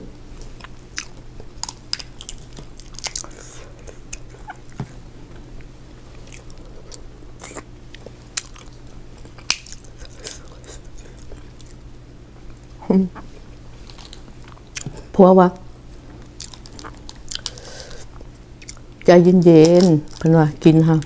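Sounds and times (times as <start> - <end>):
chewing and biting: 0.4 - 5.0, 6.1 - 11.8, 16.2 - 20.3.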